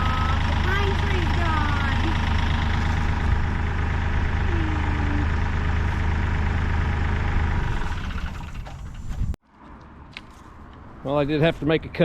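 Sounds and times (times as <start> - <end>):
tractor diesel engine running: 0.0 - 9.4.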